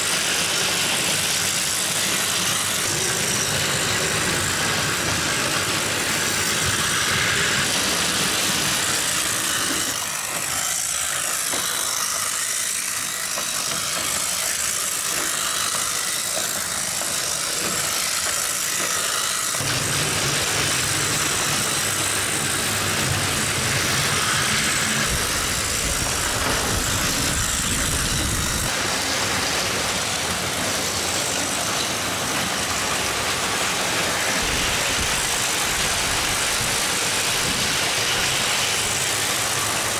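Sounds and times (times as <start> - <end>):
toy trains running on plastic track: 0.0 - 39.9
toy engine rumble: 2.1 - 29.1.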